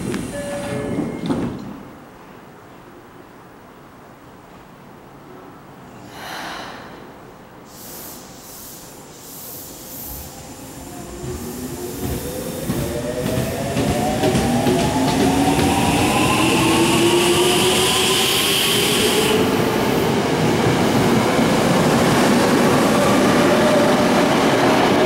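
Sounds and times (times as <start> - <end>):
air hissing: 7.7 - 12.6.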